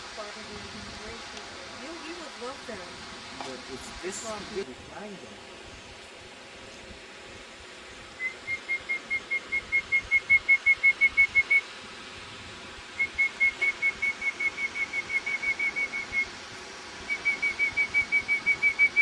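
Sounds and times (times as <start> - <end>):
bird whistling short notes: 13.0 - 16.3, 17.1 - 19.0.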